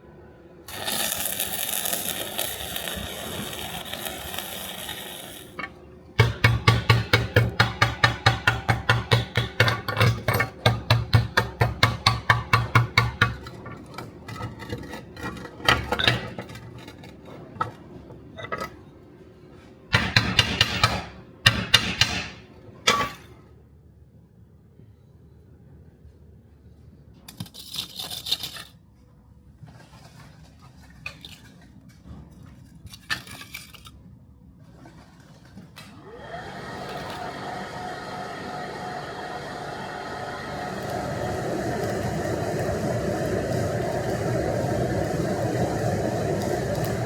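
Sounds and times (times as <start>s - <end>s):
steady hiss: 0.7s - 5.7s, 40.7s - 47.0s.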